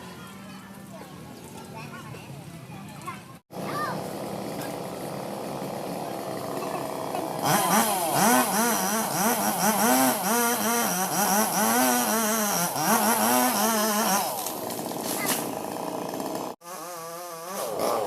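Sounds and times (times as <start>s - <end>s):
chainsaw revving: 3.5s - 18.0s.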